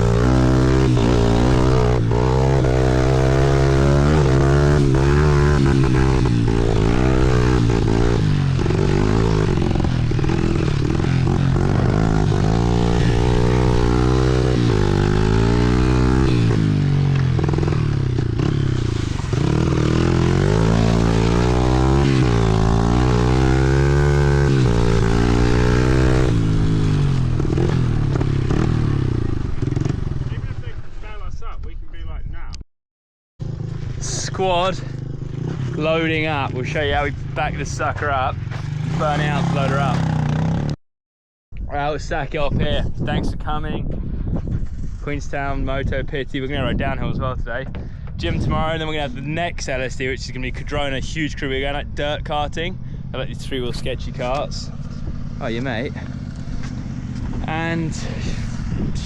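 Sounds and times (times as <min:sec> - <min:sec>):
pit bike engine revving: 0:00.0 - 0:31.0, 0:33.4 - 0:40.8, 0:48.2 - 0:59.0.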